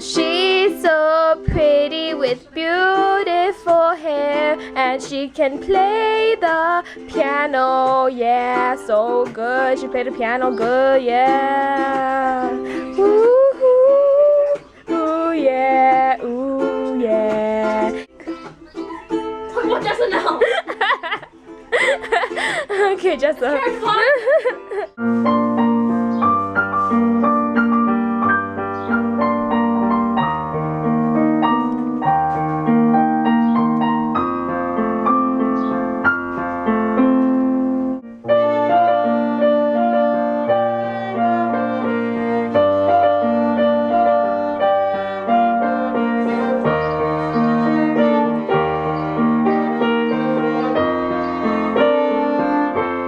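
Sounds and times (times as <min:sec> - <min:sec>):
piano music: 0:23.2 - 0:53.0.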